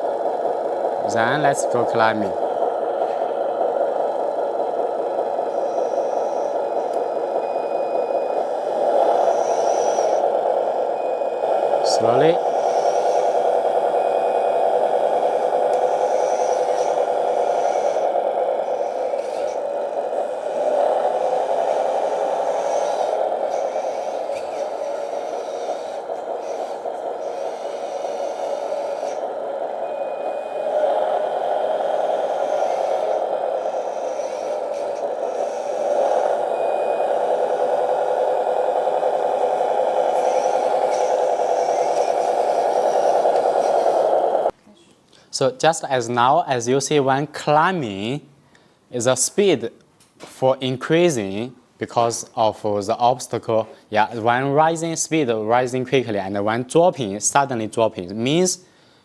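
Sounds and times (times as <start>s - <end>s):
toy truck mechanical running: 0.0s - 3.2s, 30.1s - 44.6s
simulated engine sound: 0.0s - 44.5s
electric motor whirring hum: 0.0s - 44.6s.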